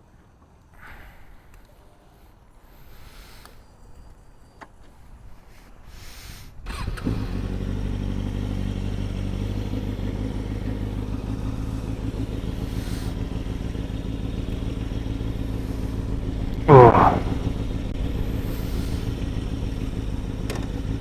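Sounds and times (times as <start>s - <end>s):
motorcycle engine starting and idling: 6.6s - 21.0s.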